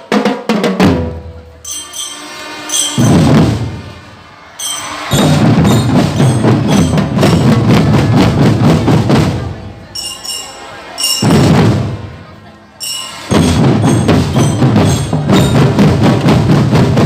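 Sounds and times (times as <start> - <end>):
drum band playing: 0.0 - 17.0
bell-like ringing notes: 1.6 - 3.8, 4.5 - 7.6, 9.8 - 11.8, 12.7 - 15.9.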